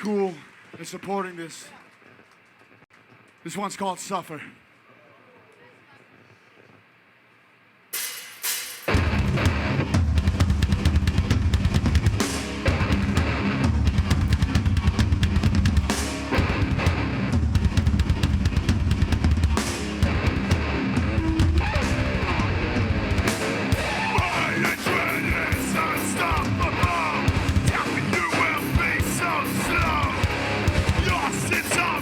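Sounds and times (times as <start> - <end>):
heavy band playing: 8.0 - 32.0
loud drum hits: 8.0 - 32.0.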